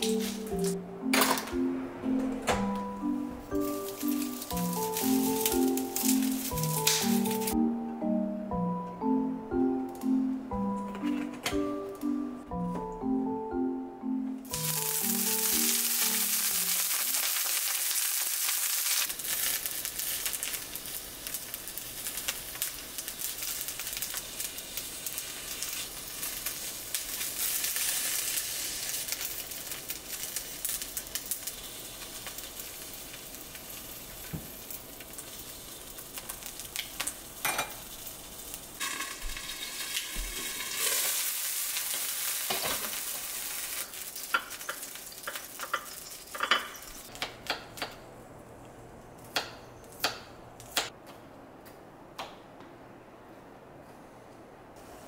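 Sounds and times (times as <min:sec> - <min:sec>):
vegetables sizzling in hot oil: 0:03.6 - 0:07.6, 0:14.5 - 0:47.1.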